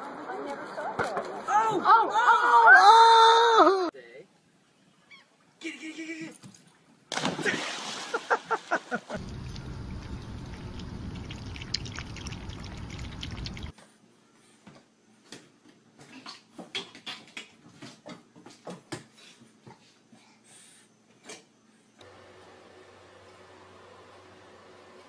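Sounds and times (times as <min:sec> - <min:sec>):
running water: 0:09.1 - 0:13.7.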